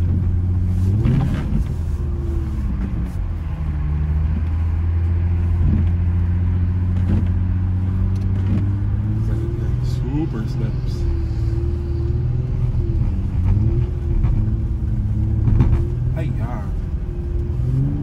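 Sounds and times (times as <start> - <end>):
car engine droning: 0.0 - 18.0.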